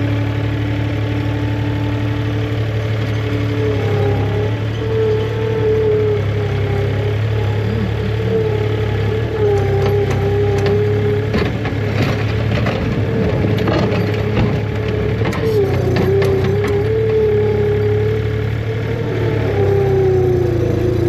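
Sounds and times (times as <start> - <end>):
tractor engine running: 0.0 - 21.0
wavering whine: 1.0 - 12.4.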